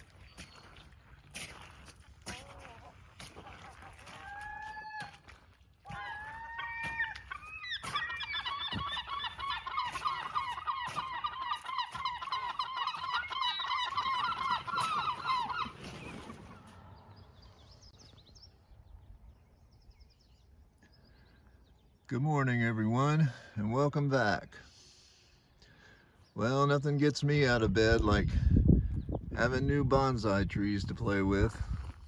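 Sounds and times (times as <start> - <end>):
flock of birds honking: 5.9 - 17.3.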